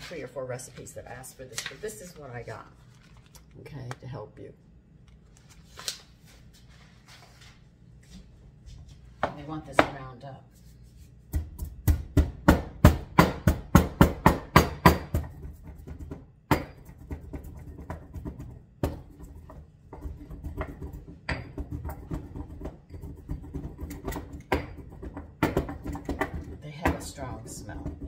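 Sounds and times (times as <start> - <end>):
pestle pounding in a mortar: 11.3 - 28.0
pestle grinding in a mortar: 11.4 - 28.0.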